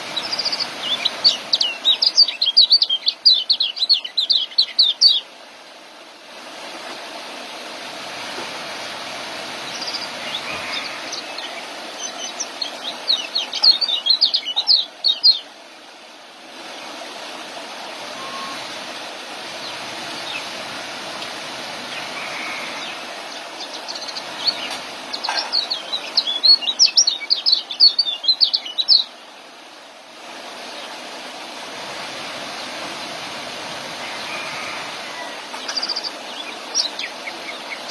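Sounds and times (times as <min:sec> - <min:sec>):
young songbirds chirping: 0:00.0 - 0:05.3, 0:09.6 - 0:15.6, 0:19.6 - 0:20.6, 0:21.9 - 0:29.4, 0:35.4 - 0:37.9
steady hiss: 0:00.0 - 0:37.9.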